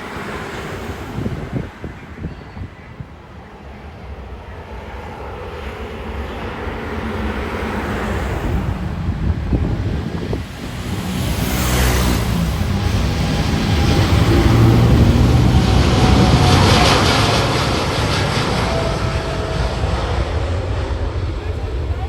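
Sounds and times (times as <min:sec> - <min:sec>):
aircraft engine roar: 0:00.0 - 0:22.0
wind rumble on microphone: 0:00.0 - 0:22.0.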